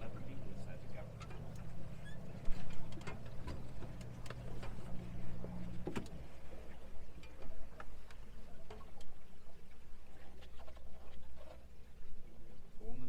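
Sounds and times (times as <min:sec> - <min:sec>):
boat motor humming: 0:00.0 - 0:08.5
light ticks and clicks: 0:01.2 - 0:01.8, 0:02.4 - 0:05.0.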